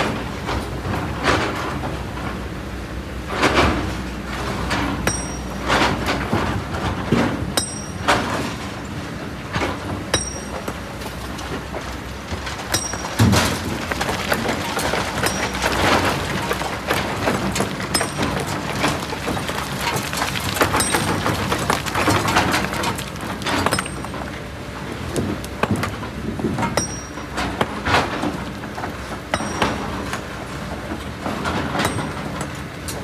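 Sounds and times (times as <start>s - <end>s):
excavator bucket scraping: 3.3s - 33.0s
diesel engine running: 3.8s - 33.0s
rocks clattering: 10.1s - 24.4s, 29.2s - 30.3s.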